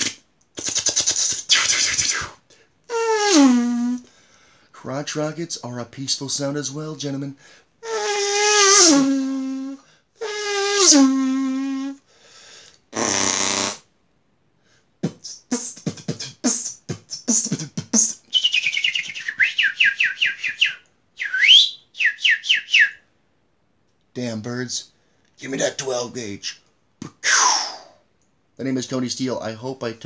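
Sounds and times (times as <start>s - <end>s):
mouth hiss: 0.0s - 4.2s, 7.4s - 13.9s, 14.6s - 22.8s, 25.4s - 28.0s
man imitating motorcycle revving: 15.0s - 18.2s
falling chirps: 17.4s - 23.0s.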